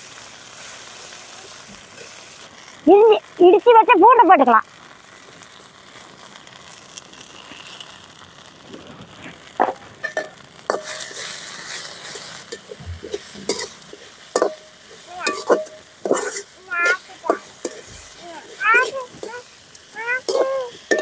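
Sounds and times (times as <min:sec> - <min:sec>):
greens sizzling in oil: 0:00.0 - 0:21.0
spoon scraping metal pot: 0:12.5 - 0:14.6, 0:15.2 - 0:16.6.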